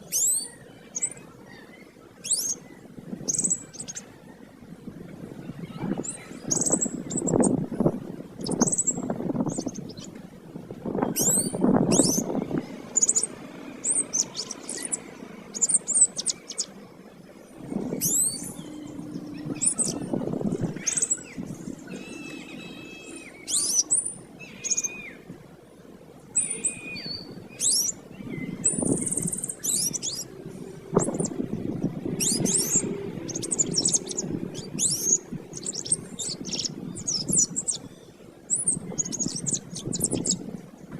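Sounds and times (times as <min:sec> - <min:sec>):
low background noise: 0:00.0 - 0:40.9
canary singing: 0:08.4 - 0:10.1, 0:11.0 - 0:16.8, 0:17.6 - 0:25.2, 0:26.4 - 0:37.9, 0:38.5 - 0:40.4.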